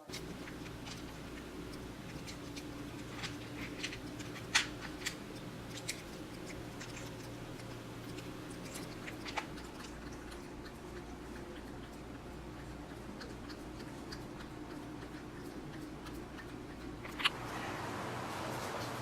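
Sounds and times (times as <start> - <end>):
small clicks and taps: 0.0 - 17.4
low room hum: 0.0 - 19.0.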